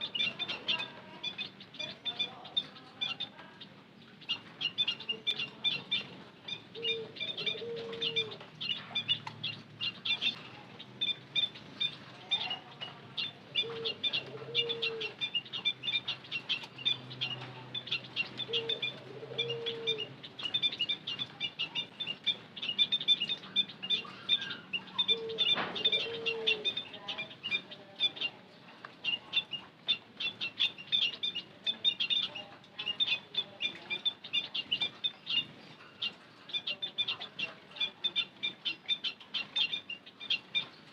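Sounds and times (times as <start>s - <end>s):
flock of birds chirping: 0.0s - 40.9s
low dove-like call: 13.3s - 15.3s, 18.4s - 20.2s, 23.9s - 27.0s.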